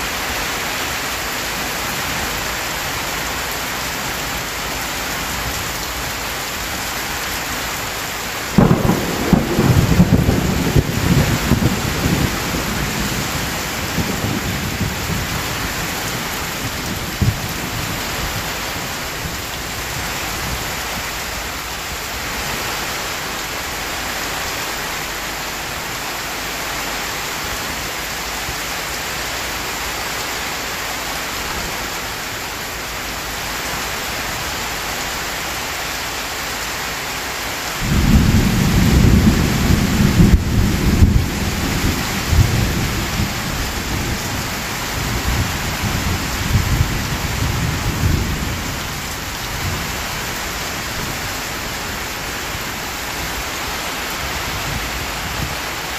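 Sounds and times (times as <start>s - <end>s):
heavy rain falling: 0.0s - 55.9s
thunder rumbling: 8.6s - 21.0s, 37.8s - 51.4s.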